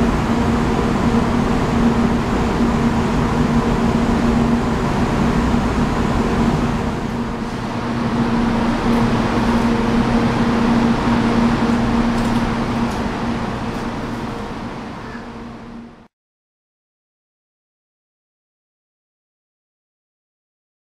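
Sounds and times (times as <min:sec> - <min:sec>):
train rumbling from inside: 0:00.0 - 0:16.1.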